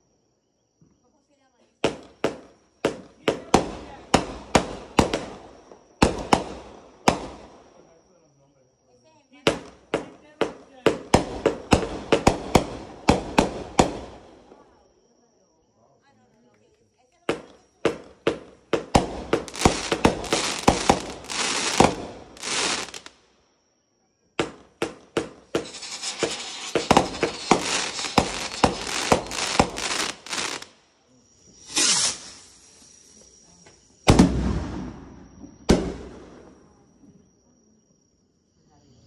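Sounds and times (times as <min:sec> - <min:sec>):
heavy firework bangs: 0:01.8 - 0:07.6, 0:09.5 - 0:14.4, 0:17.3 - 0:23.1, 0:24.4 - 0:30.7, 0:34.1 - 0:36.5
firework launch pops and crackles: 0:01.8 - 0:07.8, 0:09.5 - 0:14.6, 0:17.3 - 0:23.3, 0:24.4 - 0:30.8, 0:31.6 - 0:33.1, 0:34.0 - 0:36.7.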